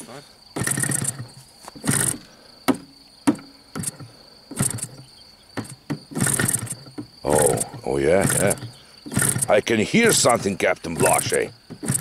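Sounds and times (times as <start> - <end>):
cricket trill: 0.0 - 12.0
sharp clicks: 0.6 - 2.3, 3.3 - 12.0
short noisy bursts: 0.6 - 2.4, 3.6 - 5.0, 5.6 - 12.0.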